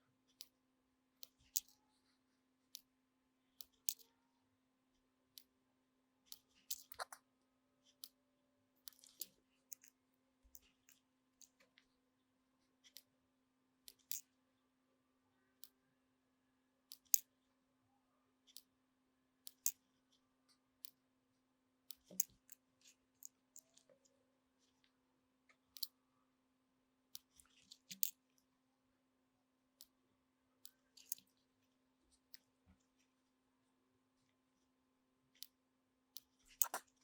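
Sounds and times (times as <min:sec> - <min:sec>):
faint steady hum: 0:00.0 - 0:37.0
small sharp clicks and taps: 0:01.2 - 0:01.9, 0:02.7 - 0:03.0, 0:03.6 - 0:04.2, 0:06.3 - 0:07.2, 0:08.8 - 0:11.9, 0:12.8 - 0:13.2, 0:13.8 - 0:14.3, 0:15.6 - 0:15.8, 0:16.9 - 0:17.3, 0:19.4 - 0:21.1, 0:21.8 - 0:26.0, 0:27.1 - 0:28.5, 0:30.6 - 0:33.1.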